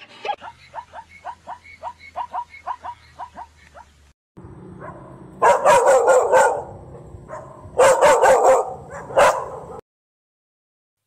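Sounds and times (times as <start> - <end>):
dog barking: 0.4 - 3.9, 4.8 - 9.8.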